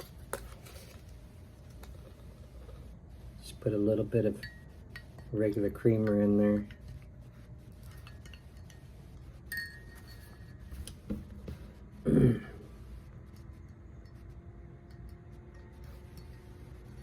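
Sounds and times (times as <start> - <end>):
spoon clinking against mug: 7.8 - 8.9, 9.5 - 10.7.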